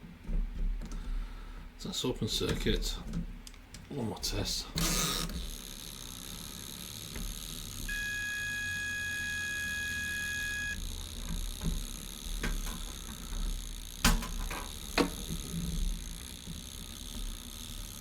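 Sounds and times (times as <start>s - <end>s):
multimeter continuity beep: 7.9s - 10.8s
handling knocks and clicks: 11.2s - 13.4s.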